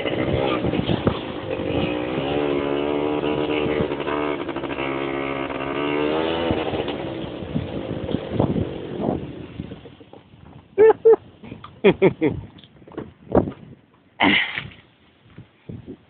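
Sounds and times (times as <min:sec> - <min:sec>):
quad bike engine revving: 0:00.0 - 0:10.0.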